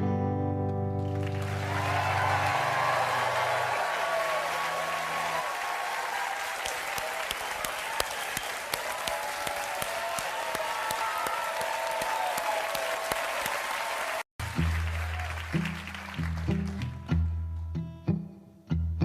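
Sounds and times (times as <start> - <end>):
audience clapping: 1.0 - 17.2
crowd voices calling out: 1.4 - 14.2.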